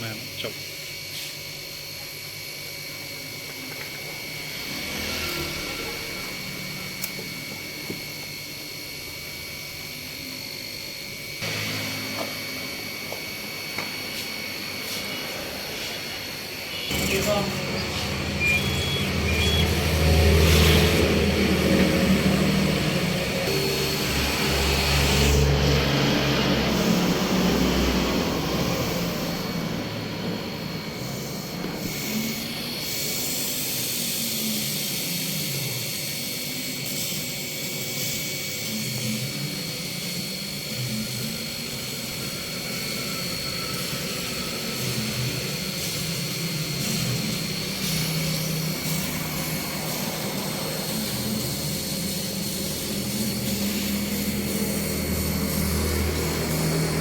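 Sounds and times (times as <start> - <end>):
high whine: 0.0 - 35.9, 37.3 - 57.0
laser cutting machine drone: 0.0 - 57.0
motor tones rising and falling: 4.1 - 8.4, 16.7 - 32.6.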